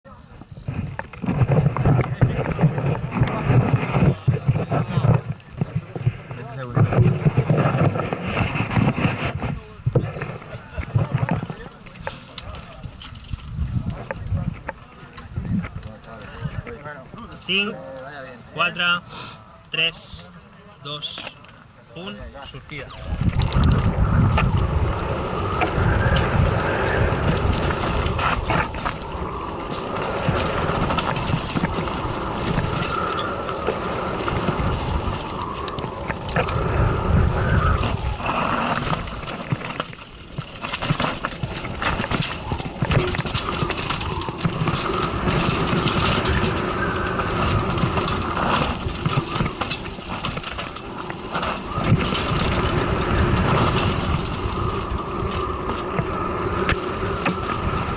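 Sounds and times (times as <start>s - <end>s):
wind buffeting microphone: 0.0s - 17.4s, 22.2s - 57.9s
bike rattling and knocking: 0.4s - 16.8s, 22.7s - 57.9s
tyres crunching over rocks: 22.7s - 57.9s.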